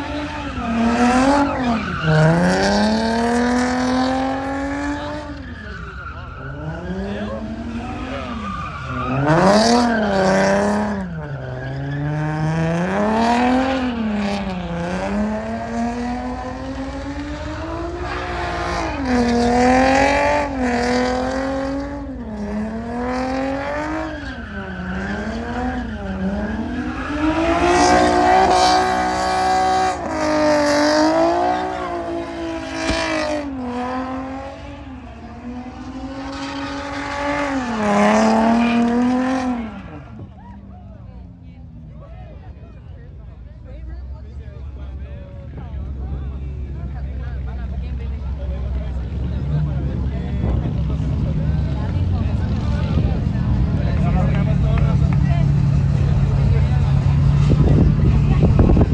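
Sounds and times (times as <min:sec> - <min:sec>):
truck engine revving: 0:00.0 - 0:05.3, 0:06.4 - 0:40.1.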